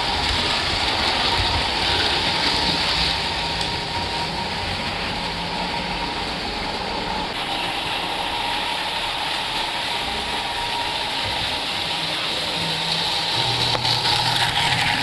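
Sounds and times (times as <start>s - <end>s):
model train whirring on track: 0.0s - 15.0s.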